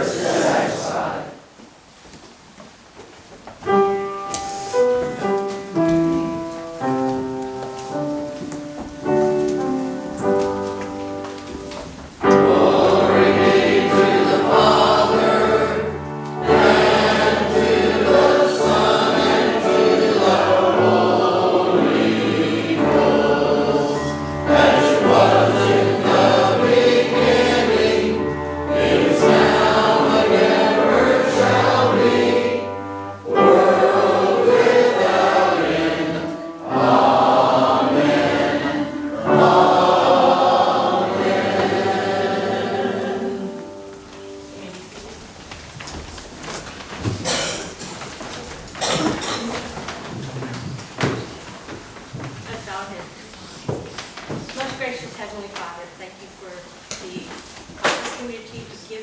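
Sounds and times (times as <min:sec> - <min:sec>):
choir singing with accompaniment: 0:00.0 - 0:01.6, 0:12.2 - 0:44.8.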